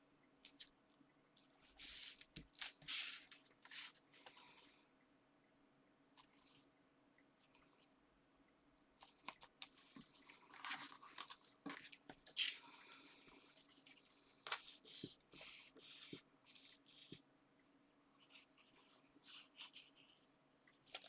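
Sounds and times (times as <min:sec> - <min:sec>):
paper taps and crinkles: 0:09.0 - 0:12.6.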